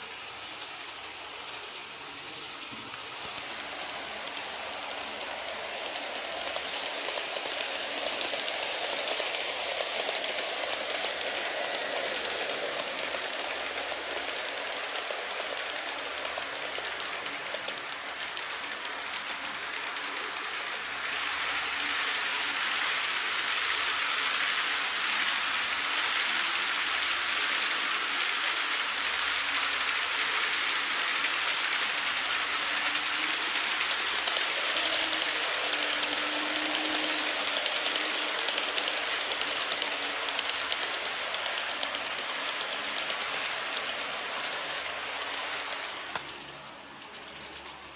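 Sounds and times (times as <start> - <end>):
model train running on track: 0.0 - 47.9
fine rapid clicks: 0.6 - 21.4, 30.1 - 47.6.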